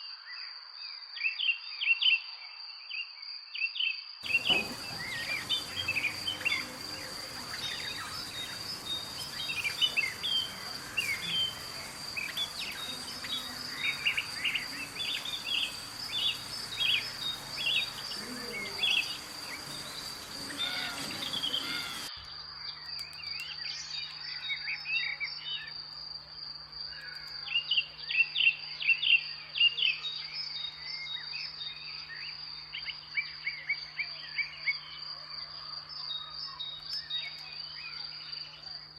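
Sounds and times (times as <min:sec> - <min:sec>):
small birds chirping: 0:04.2 - 0:25.9
insect drone: 0:04.2 - 0:38.9.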